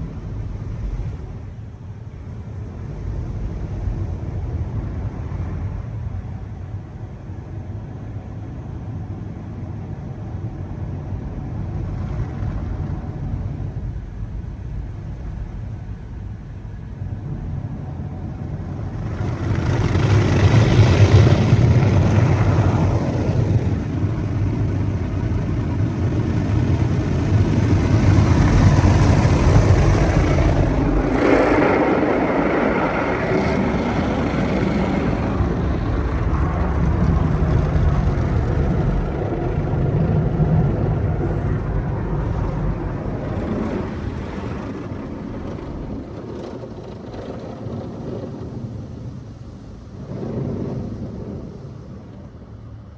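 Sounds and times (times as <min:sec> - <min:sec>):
car wash machine rumble: 0:15.8 - 0:52.9
water spray rushing: 0:26.3 - 0:40.1.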